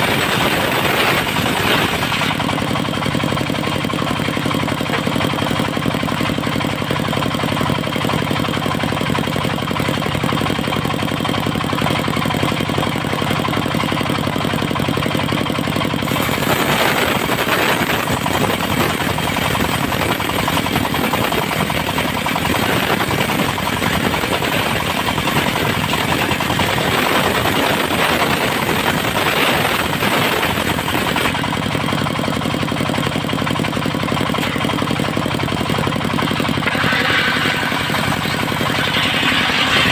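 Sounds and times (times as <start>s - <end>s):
circular saw cutting wood: 0.0s - 2.7s, 16.0s - 31.5s, 36.1s - 39.9s
sawmill engine running: 0.0s - 39.9s.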